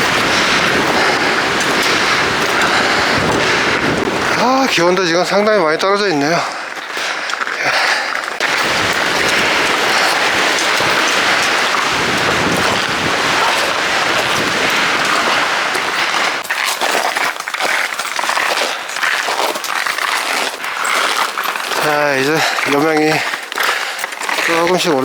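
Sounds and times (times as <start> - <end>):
strong gusty wind: 0.0 - 6.7, 8.4 - 16.4.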